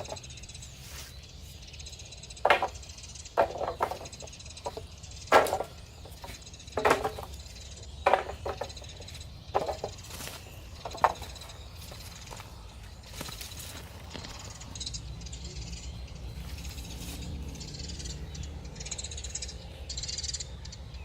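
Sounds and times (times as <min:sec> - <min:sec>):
sharp knocks: 0:02.4 - 0:10.1.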